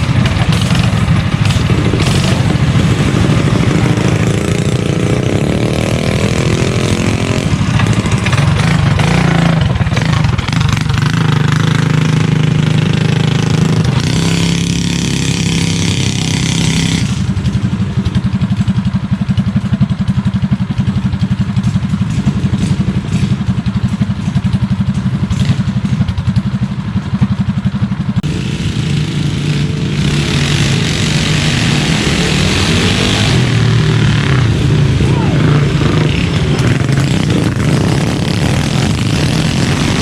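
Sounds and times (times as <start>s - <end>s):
mini bike engine running: 0.0s - 40.0s.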